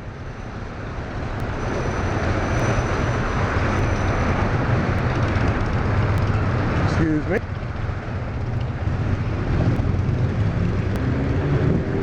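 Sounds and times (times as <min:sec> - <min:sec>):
road traffic noise: 0:00.0 - 0:12.0
wind rush: 0:07.8 - 0:12.0.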